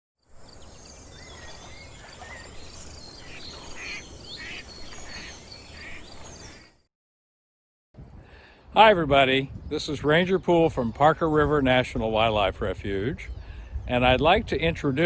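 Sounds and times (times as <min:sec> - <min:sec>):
birds chirping and whistling: 0:00.4 - 0:06.8.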